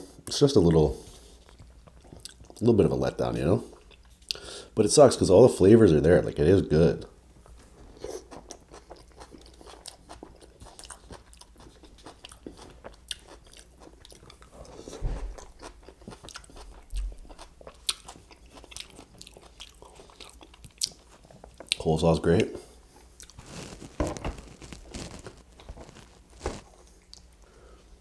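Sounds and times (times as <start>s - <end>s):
chewing crunchy coleslaw: 1.2s - 2.7s, 7.4s - 27.4s.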